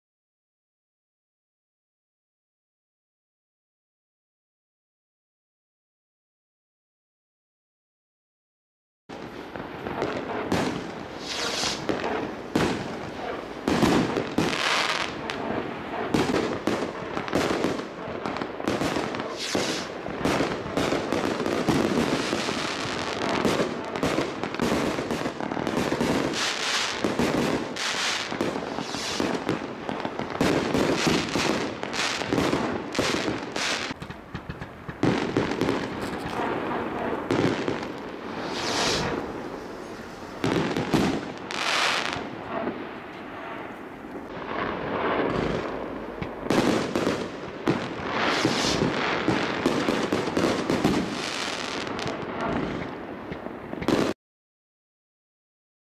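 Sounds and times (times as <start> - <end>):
fireworks bangs and crackles: 9.1 - 54.2.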